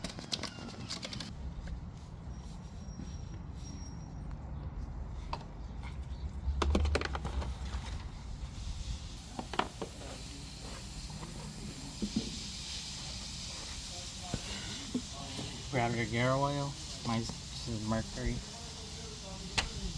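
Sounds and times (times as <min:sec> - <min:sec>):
plastic parts clicking and knocking: 0:06.6 - 0:07.5
steady hiss: 0:08.1 - 0:19.9.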